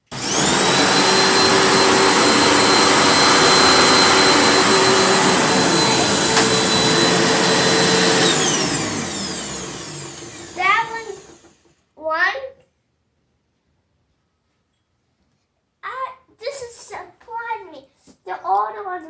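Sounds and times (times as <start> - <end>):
vacuum cleaner motor whine: 0.0 - 11.7.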